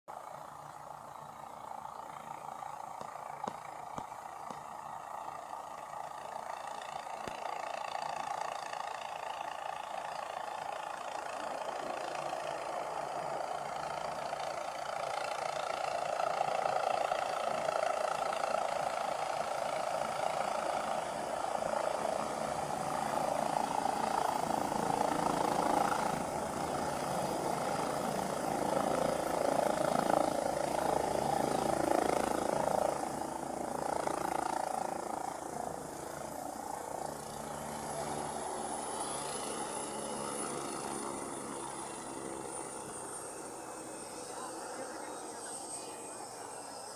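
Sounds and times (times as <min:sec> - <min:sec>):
aircraft engine and rotor drone: 0:00.1 - 0:46.9.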